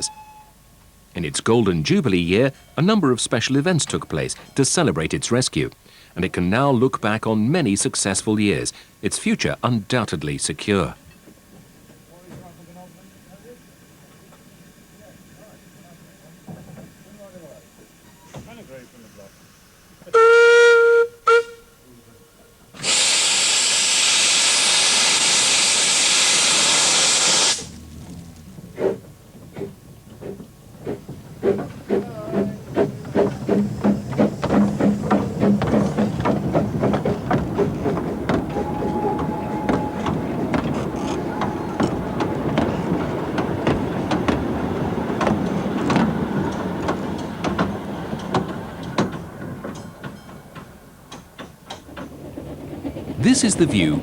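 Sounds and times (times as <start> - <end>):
steam whistle toots: 0.0 - 0.6, 20.1 - 21.9, 22.8 - 27.7, 38.5 - 42.4
steam locomotive exhaust beats: 0.0 - 54.0
steam hiss: 12.5 - 21.5, 22.6 - 44.2.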